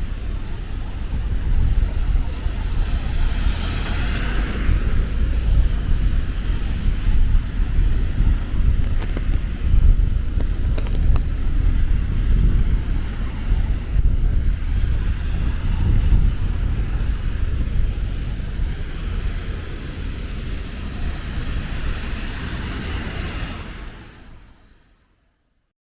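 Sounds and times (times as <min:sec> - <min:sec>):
steady rain hiss: 0:00.0 - 0:24.8
wind buffeting microphone: 0:00.0 - 0:24.8
low rumble of traffic: 0:00.0 - 0:25.4.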